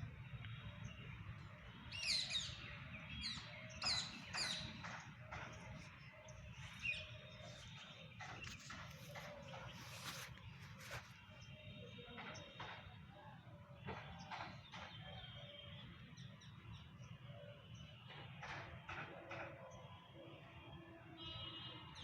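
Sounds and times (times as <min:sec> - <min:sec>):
small birds chirping: 0:00.1 - 0:12.9.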